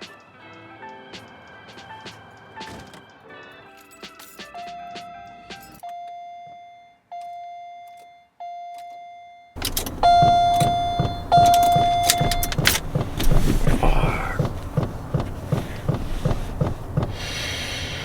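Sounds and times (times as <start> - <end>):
car warning chime bonging: 7.9 - 18.0
low thumping: 9.6 - 18.0.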